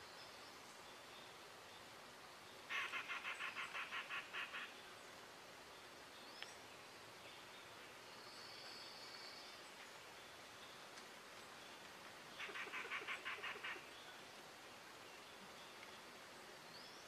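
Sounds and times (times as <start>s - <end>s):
bird harsh call: 2.7s - 4.8s, 12.4s - 13.9s.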